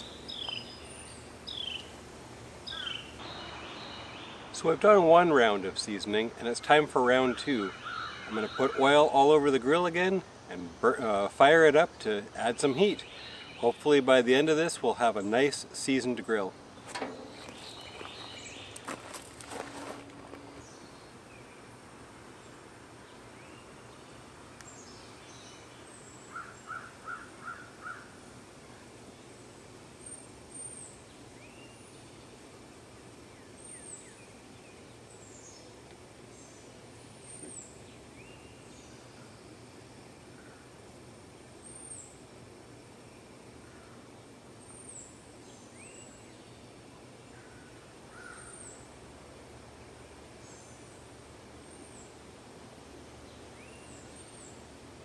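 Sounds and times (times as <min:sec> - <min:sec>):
bird calling: 0:00.0 - 0:02.0, 0:02.6 - 0:04.8, 0:06.6 - 0:09.4, 0:12.7 - 0:13.8, 0:16.7 - 0:21.7, 0:25.9 - 0:28.2, 0:47.4 - 0:48.9
background noise: 0:00.0 - 0:55.0
faint background hiss: 0:00.0 - 0:55.0.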